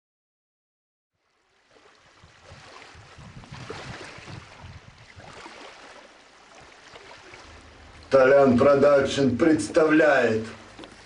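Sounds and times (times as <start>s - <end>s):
rushing water: 1.2s - 11.0s
wind on microphone: 2.0s - 5.9s.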